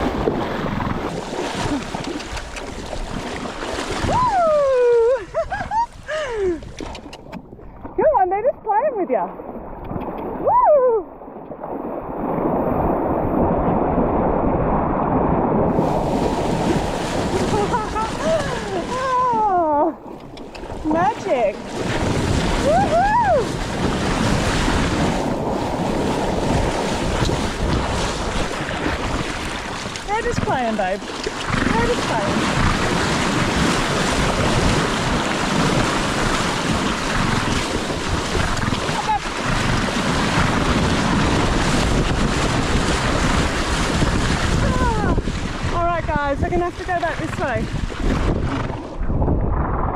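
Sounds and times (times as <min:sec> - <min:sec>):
surf: 0:00.0 - 0:08.2, 0:08.9 - 0:49.9
wind rushing: 0:11.7 - 0:20.0, 0:20.7 - 0:49.9.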